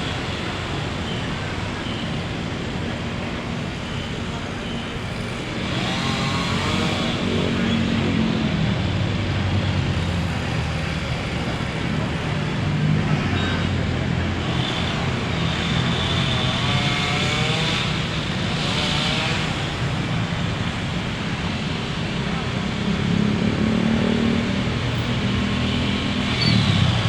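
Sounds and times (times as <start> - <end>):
road traffic noise: 0.0 - 27.0.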